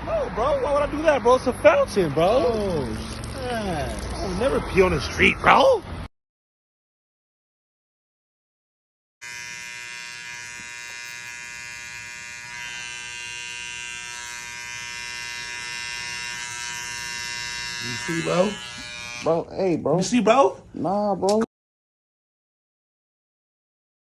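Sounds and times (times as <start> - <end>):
small motor electric buzz: 9.2 - 19.4.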